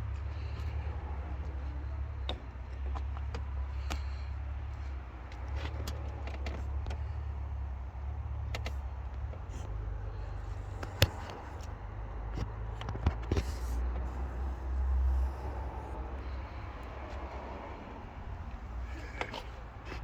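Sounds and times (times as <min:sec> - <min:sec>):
sharp clicks and knocks: 0:10.8 - 0:11.7
car engine idling: 0:13.4 - 0:20.0.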